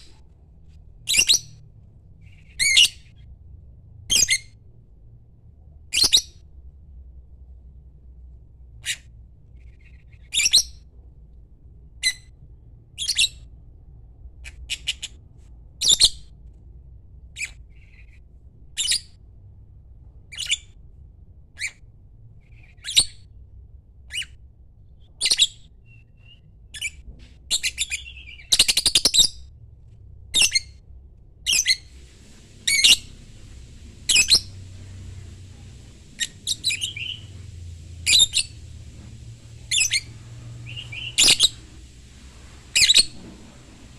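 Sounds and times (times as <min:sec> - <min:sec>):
lovebird chirping: 0:01.1 - 0:01.6, 0:25.2 - 0:29.4, 0:31.5 - 0:43.9.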